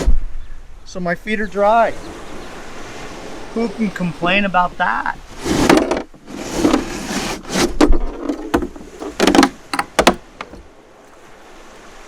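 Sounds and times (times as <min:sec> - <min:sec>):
rustling and scraping: 0:05.2 - 0:11.2
gear knocking in dinghy: 0:05.3 - 0:11.2.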